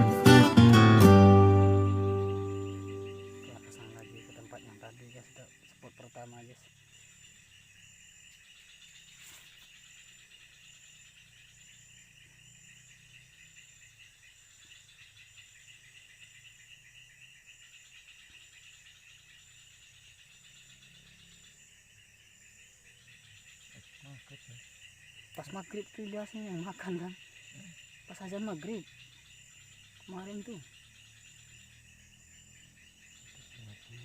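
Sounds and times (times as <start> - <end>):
crickets trilling: 0.0 - 34.0.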